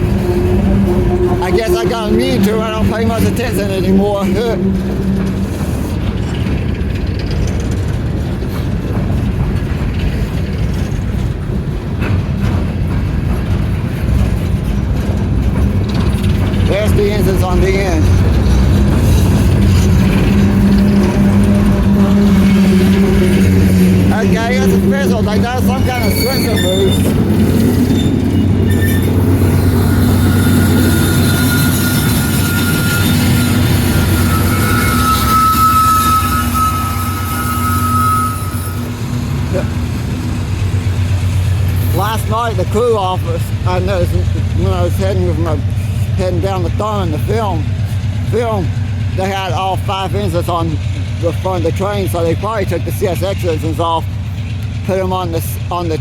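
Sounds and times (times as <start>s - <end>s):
locomotive engine drone: 0.0s - 56.0s
train wheels rumbling on rail: 0.0s - 56.0s
wheels clicking over rail joints: 0.0s - 56.0s
thin high whine: 30.2s - 38.9s.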